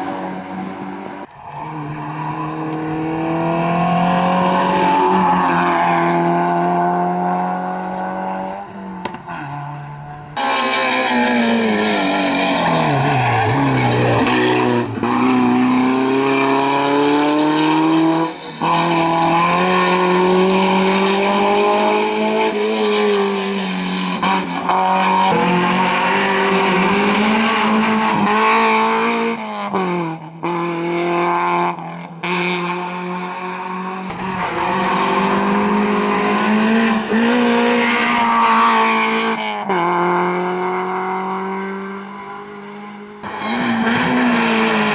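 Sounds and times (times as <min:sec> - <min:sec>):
rally car engine at high revs: 0:00.0 - 0:44.9.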